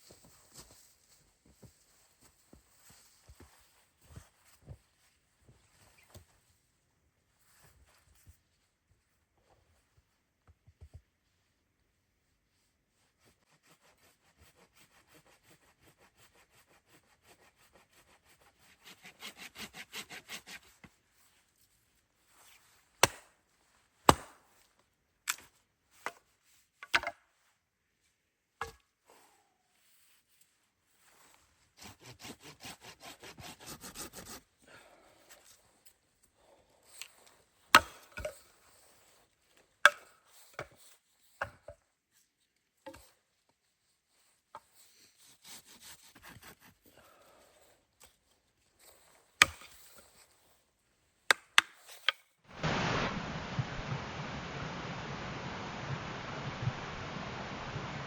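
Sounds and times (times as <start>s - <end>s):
hand saw cutting wood: 13.6s - 20.8s, 31.8s - 34.4s, 45.2s - 46.8s.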